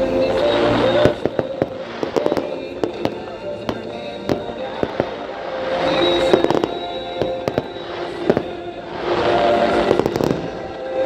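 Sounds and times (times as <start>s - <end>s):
background music: 0.0s - 11.0s
crackling fizz of fireworks: 0.0s - 11.0s
fireworks bangs: 0.0s - 11.0s.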